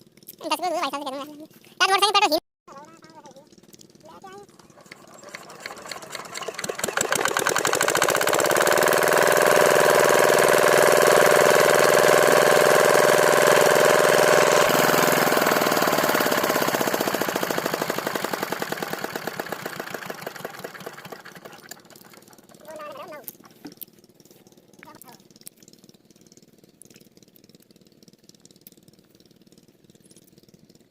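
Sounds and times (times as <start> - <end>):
engine knocking: 2.7 - 30.9.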